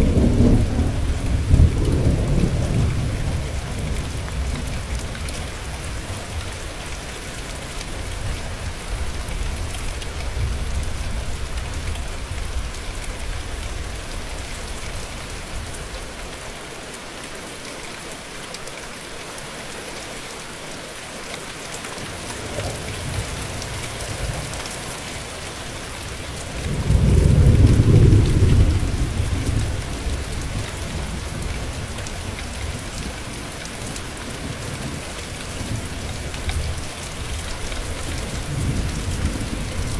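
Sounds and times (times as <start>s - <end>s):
thunder rumbling: 0.0s - 6.4s, 22.2s - 39.9s
rain hissing on a surface: 0.0s - 39.9s.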